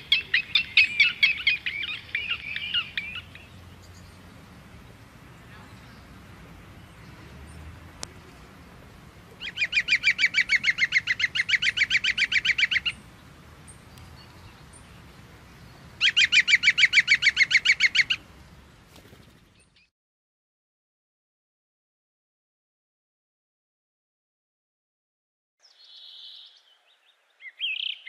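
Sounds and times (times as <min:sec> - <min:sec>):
bird trilling: 0:00.0 - 0:03.5, 0:09.4 - 0:13.0, 0:16.0 - 0:18.2
faint outdoor background hiss: 0:00.0 - 0:19.9, 0:25.6 - 0:28.0.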